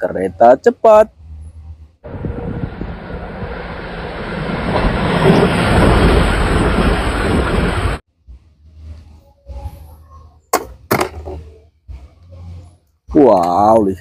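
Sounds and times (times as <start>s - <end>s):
train rushing past on rails: 1.2s - 8.0s.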